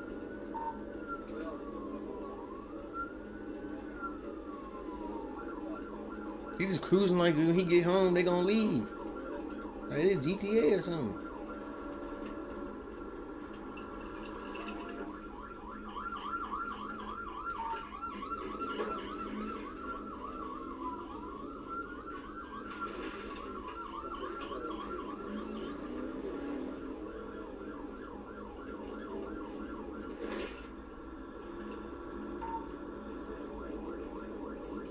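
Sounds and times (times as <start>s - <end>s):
police siren yelp and wail: 0.0s - 34.9s.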